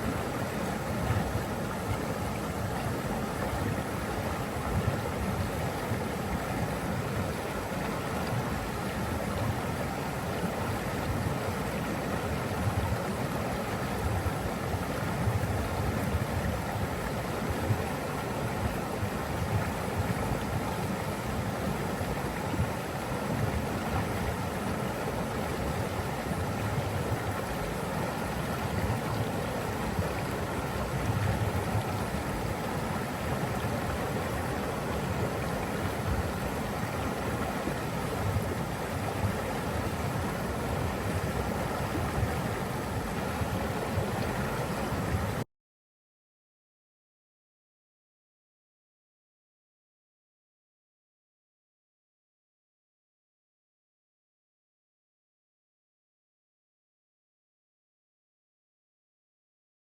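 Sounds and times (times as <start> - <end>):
flowing water rushing: 0.0 - 45.4.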